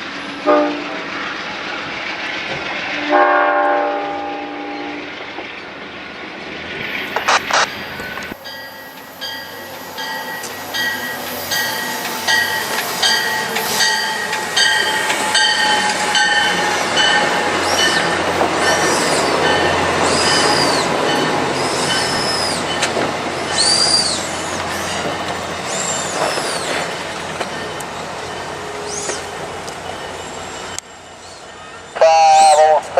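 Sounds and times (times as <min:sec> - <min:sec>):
train wheels clicking over rail joints: 0:07.1 - 0:31.4
high wheel squeal: 0:07.7 - 0:32.6.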